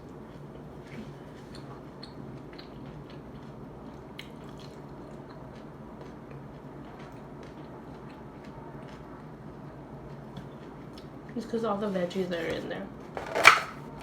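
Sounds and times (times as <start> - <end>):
person chewing: 0.3 - 9.1.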